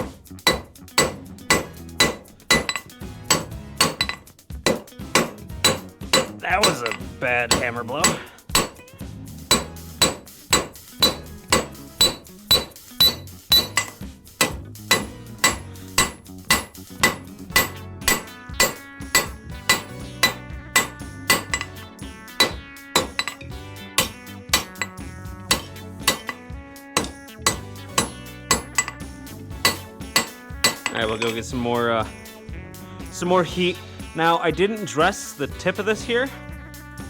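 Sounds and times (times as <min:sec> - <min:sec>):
hammer striking steel on anvil: 0:00.0 - 0:08.9, 0:09.5 - 0:26.4, 0:27.0 - 0:31.5.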